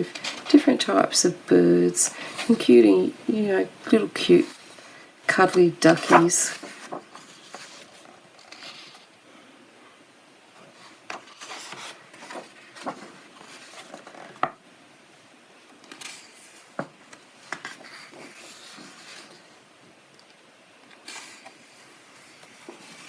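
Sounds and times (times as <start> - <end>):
paper pages rustling: 0.0 - 0.6, 3.9 - 9.2, 10.6 - 14.6, 15.7 - 19.6, 20.2 - 23.0.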